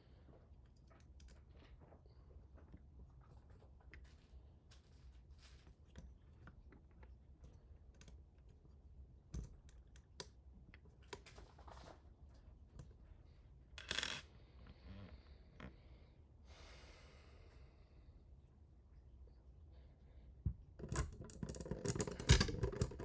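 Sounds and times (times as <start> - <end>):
small hard parts clicking: 20.8 - 23.0.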